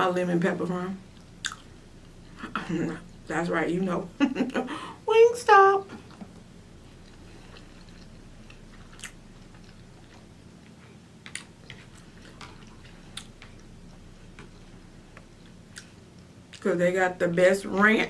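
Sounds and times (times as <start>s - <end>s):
person chewing food: 1.1s - 3.2s, 6.0s - 16.6s.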